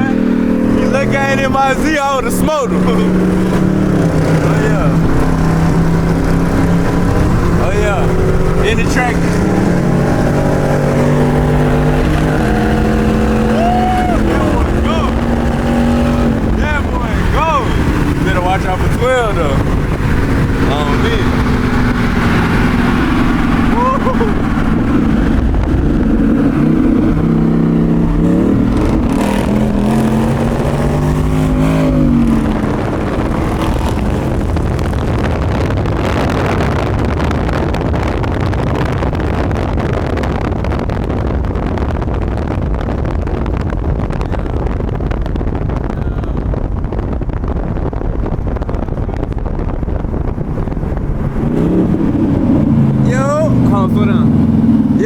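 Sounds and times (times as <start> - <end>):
car engine revving: 0.0 - 55.0
loud steady rushing noise: 0.0 - 55.0.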